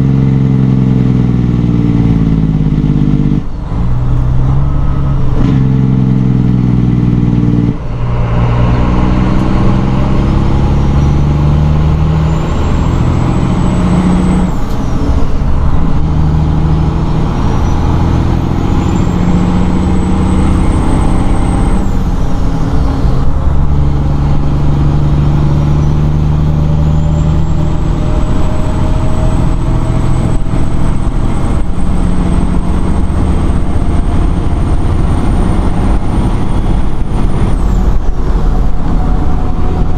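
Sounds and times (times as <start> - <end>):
diesel truck engine shifting gears: 0.0 - 39.9.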